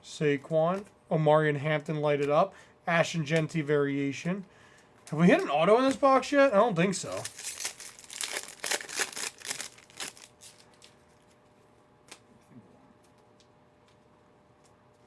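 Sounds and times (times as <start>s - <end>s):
wrapper crinkling and tearing: 7.0s - 11.1s.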